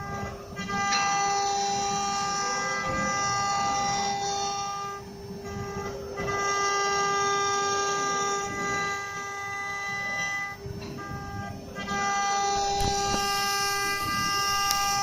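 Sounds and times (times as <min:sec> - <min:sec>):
router spindle high-pitched whine: 0:00.0 - 0:15.0
router bit cutting: 0:12.4 - 0:15.0
sharp clicks: 0:12.6 - 0:15.0.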